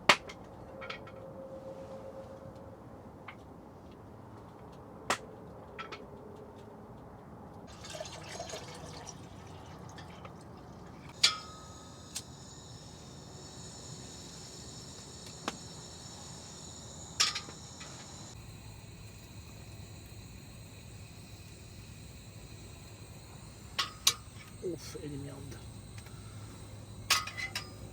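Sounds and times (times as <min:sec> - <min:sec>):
liquid pouring: 0:07.7 - 0:11.1
sharp metallic clinks: 0:11.2 - 0:18.4, 0:20.7 - 0:27.9.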